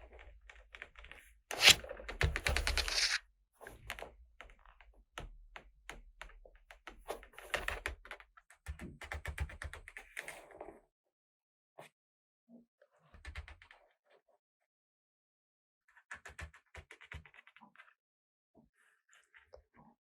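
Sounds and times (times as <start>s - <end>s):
plastic toy pieces clicking and rattling: 1.6s - 3.2s.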